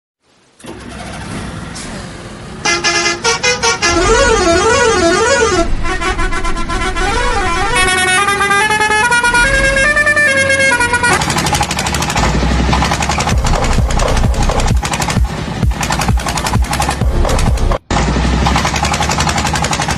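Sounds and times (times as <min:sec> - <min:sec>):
beeping horn tones: 0:02.7 - 0:11.2
warbling siren-like tone: 0:03.9 - 0:11.2
toy vehicle rumble: 0:11.0 - 0:19.9
stepped electronic jingle: 0:12.2 - 0:17.8.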